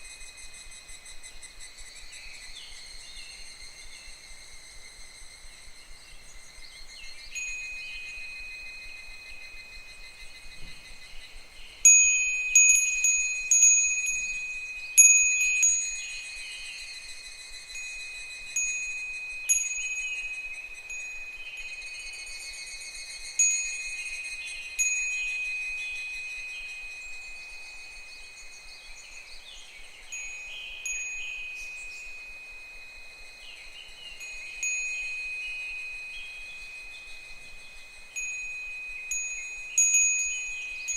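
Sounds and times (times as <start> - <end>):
cicadas chorus: 0.0 - 40.9
wind bell ringing: 7.2 - 10.5, 11.8 - 40.9.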